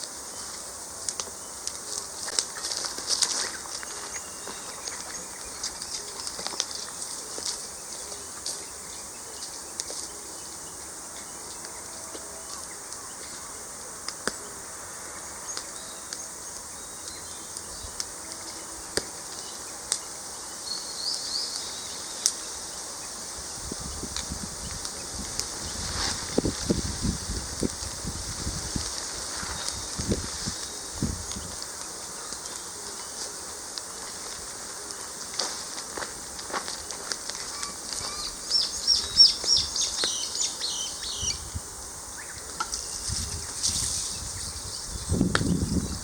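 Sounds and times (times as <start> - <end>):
insect drone: 0.0 - 46.0
bird chirps: 37.5 - 41.5.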